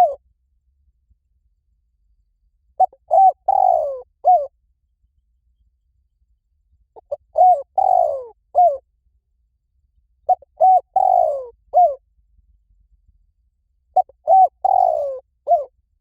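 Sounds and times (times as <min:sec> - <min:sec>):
dove cooing: 0:00.0 - 0:00.2, 0:02.8 - 0:04.5, 0:07.0 - 0:08.8, 0:10.3 - 0:12.0, 0:14.0 - 0:15.7.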